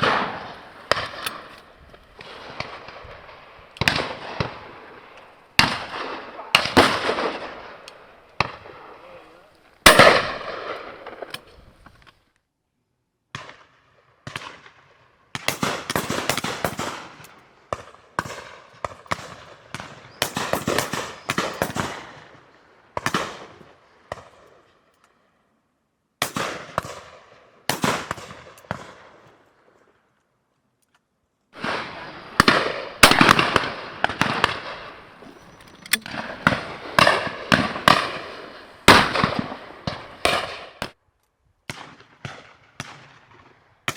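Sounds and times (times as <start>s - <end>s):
shotguns firing with echo: 0.0s - 11.5s, 15.4s - 22.4s, 26.2s - 29.2s, 31.6s - 41.0s.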